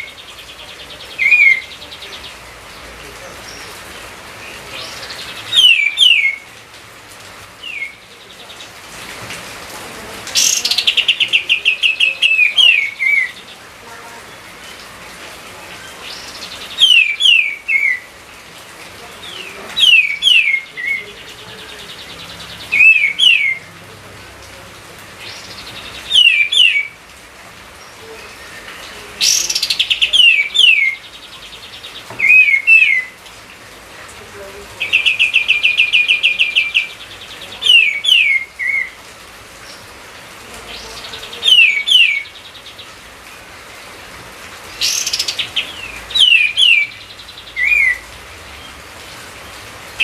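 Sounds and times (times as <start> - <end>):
songbird whistling: 5.6 - 6.4.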